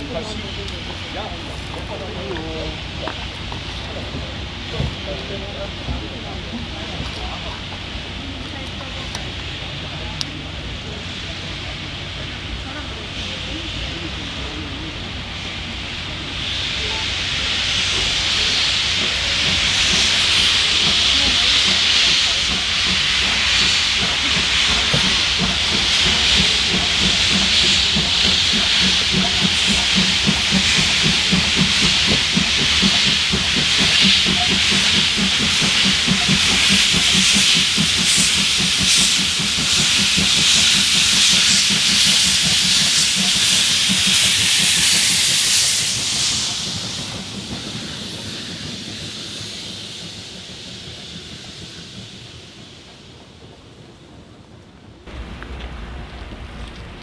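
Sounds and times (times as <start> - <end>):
steam venting hiss: 0.0 - 57.0.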